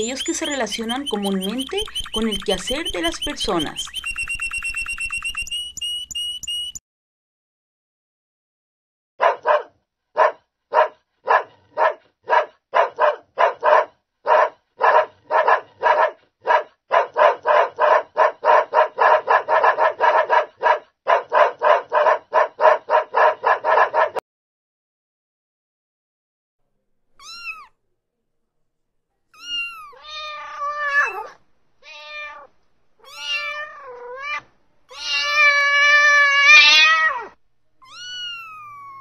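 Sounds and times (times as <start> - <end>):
dog barking: 9.2 - 24.2, 29.6 - 31.4.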